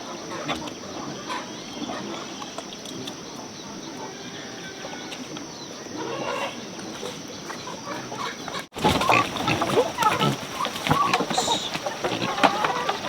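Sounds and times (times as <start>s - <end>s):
chickens clucking: 0.0s - 13.0s
steady background hiss: 8.8s - 13.0s.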